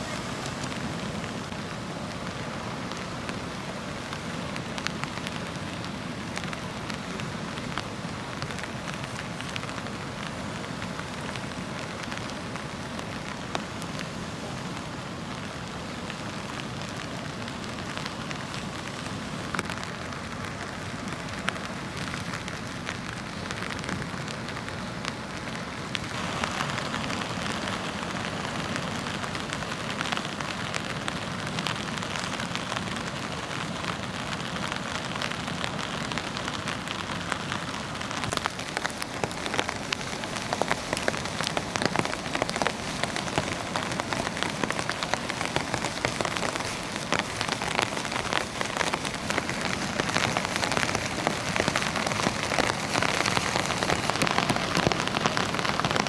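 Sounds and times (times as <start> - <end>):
surf washing onto a beach: 0.0 - 56.0
wind: 0.0 - 56.0.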